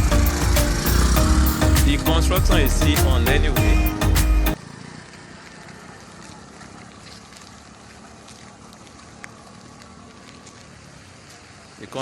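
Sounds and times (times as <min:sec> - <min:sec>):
outdoor background noise: 0:03.9 - 0:12.0.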